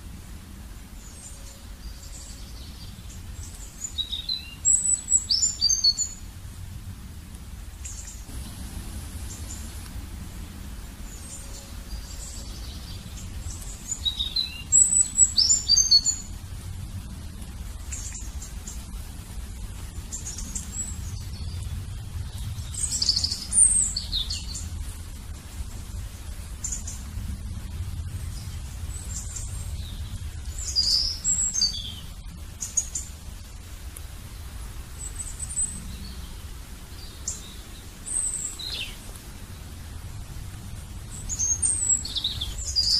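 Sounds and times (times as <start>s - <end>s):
small bird chirping: 1.0s - 6.2s, 10.5s - 16.4s, 20.1s - 24.8s, 28.3s - 33.1s, 35.0s - 39.2s, 41.0s - 42.9s
low rumble: 6.1s - 42.9s.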